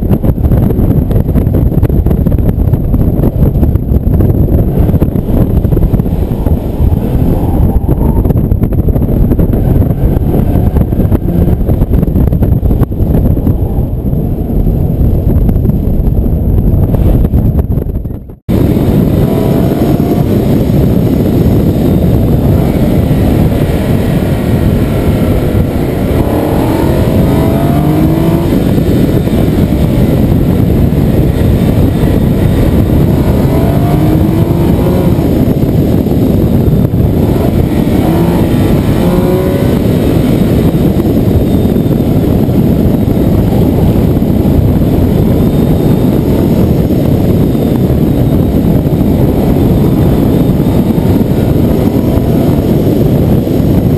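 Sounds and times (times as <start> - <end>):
road and wind noise: 0.0 - 53.9
car engine accelerating: 18.4 - 53.9.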